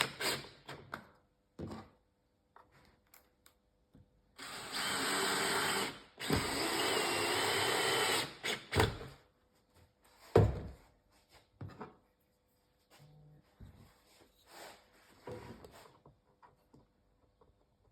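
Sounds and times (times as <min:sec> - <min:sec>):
handheld power tool on wood: 0:00.0 - 0:00.6, 0:04.4 - 0:09.1.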